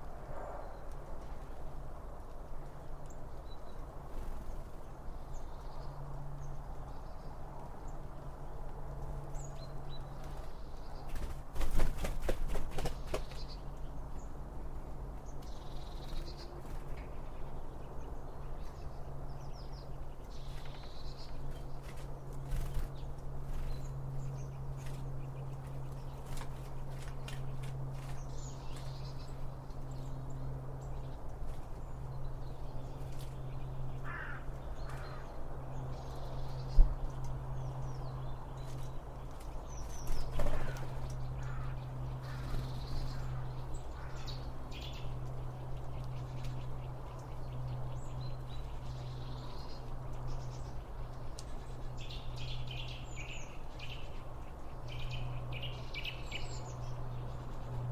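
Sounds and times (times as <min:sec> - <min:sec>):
wild birds chirping: 0:00.0 - 0:57.9
harsh caw-like bird calls: 0:34.0 - 0:35.4, 0:40.3 - 0:44.6.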